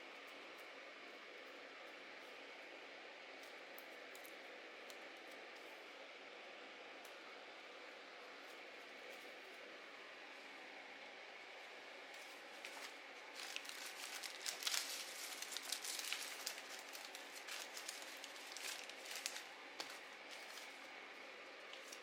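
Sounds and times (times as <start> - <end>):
paper crinkling and rustling: 12.1 - 22.0.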